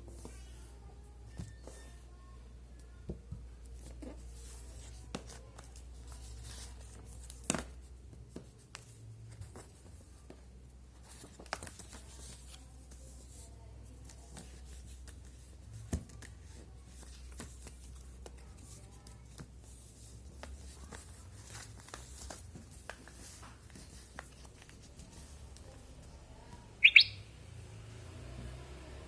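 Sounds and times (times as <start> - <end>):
paper folding and crackling: 3.6 - 10.3, 10.9 - 26.1.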